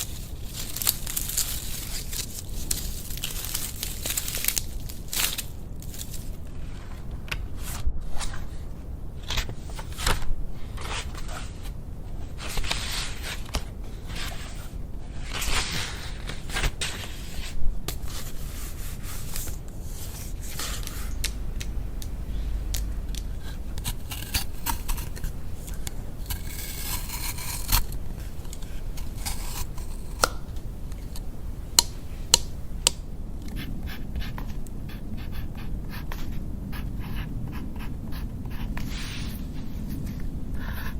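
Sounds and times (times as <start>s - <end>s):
scraping and rustling: 0.0s - 31.3s.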